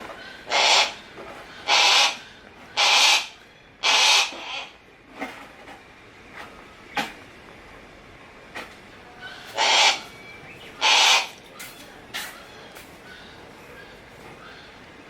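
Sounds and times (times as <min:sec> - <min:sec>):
hawk calling harshly: 0:00.4 - 0:04.8, 0:09.3 - 0:10.2, 0:10.8 - 0:11.4.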